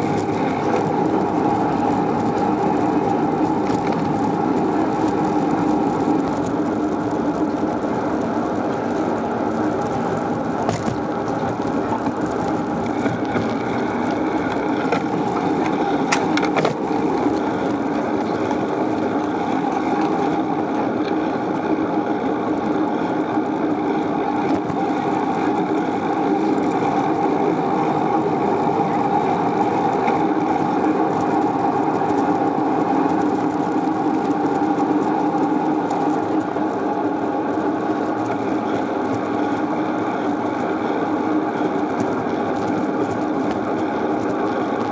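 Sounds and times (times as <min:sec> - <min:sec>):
bicycle tyres rolling on pavement: 0:00.0 - 0:44.9.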